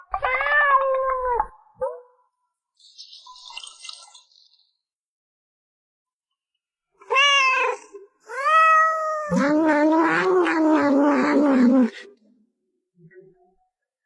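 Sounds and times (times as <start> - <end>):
cat meowing and yowling: 0.1 - 1.4, 7.0 - 11.0.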